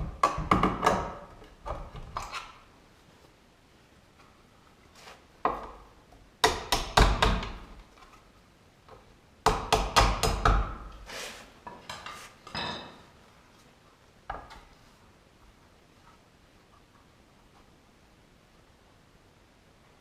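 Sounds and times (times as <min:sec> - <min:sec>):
sharp knocks of hard objects: 0:00.0 - 0:01.8, 0:06.4 - 0:07.7, 0:09.4 - 0:10.9.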